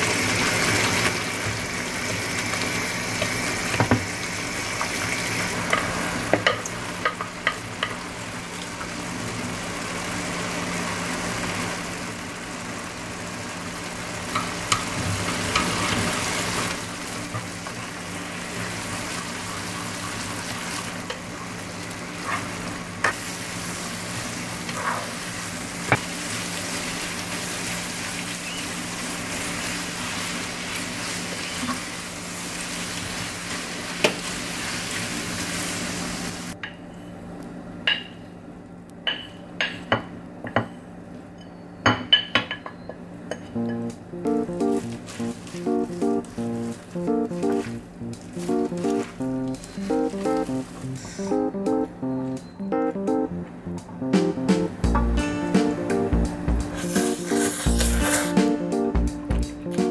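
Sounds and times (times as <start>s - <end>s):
noodles sizzling in a frying pan: 0.0s - 36.6s, 56.6s - 58.4s.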